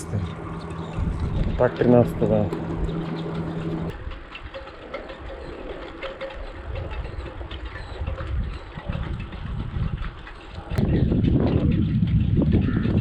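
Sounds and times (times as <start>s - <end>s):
steady hum: 0.0s - 4.0s
wind and road noise: 0.0s - 13.0s.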